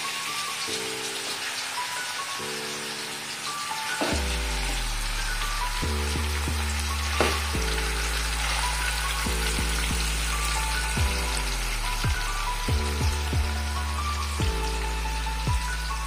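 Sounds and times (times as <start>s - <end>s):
chicken sizzling in hot oil: 0.0s - 16.0s
background music with low bass: 3.4s - 16.0s.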